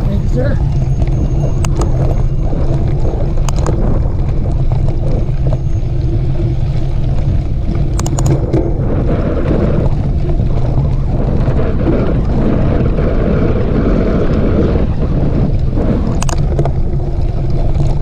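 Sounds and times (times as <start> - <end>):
wind buffeting microphone: 0.0 - 18.0
sharp rattling clicks: 0.6 - 5.6, 7.7 - 8.7, 16.0 - 18.0.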